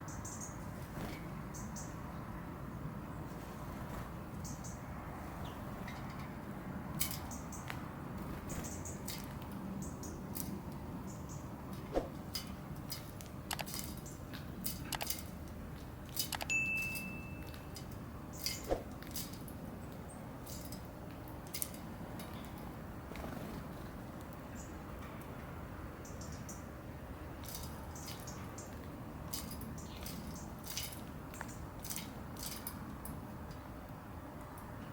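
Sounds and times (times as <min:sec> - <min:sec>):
bird chirps: 0:00.0 - 0:00.6
background hum: 0:00.0 - 0:34.9
sharp clicks: 0:13.2 - 0:13.8, 0:16.1 - 0:16.5.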